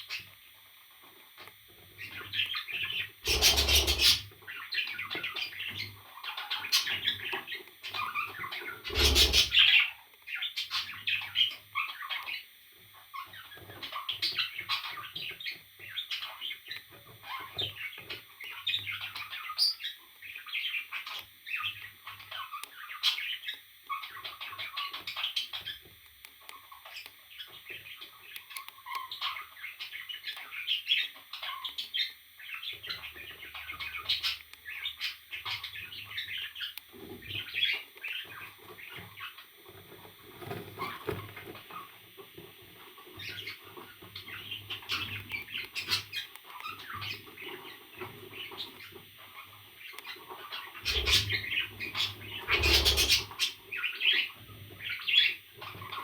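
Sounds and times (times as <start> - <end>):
parrots chirping: 2.0 - 12.4, 43.2 - 56.0.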